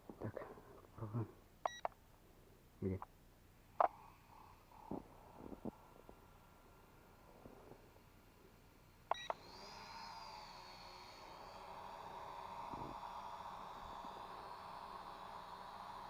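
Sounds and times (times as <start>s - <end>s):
drone motors whining: 3.7s - 16.0s
drone beeping: 9.1s - 9.4s.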